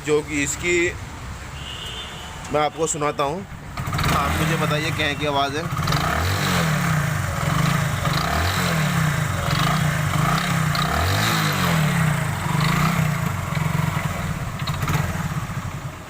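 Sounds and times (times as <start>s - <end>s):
motorcycle engine revving: 3.6s - 16.0s.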